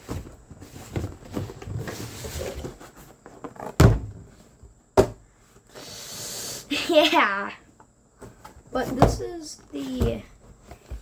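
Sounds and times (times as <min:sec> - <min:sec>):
box thumps: 0:03.4 - 0:04.3, 0:05.0 - 0:05.2, 0:08.2 - 0:11.0.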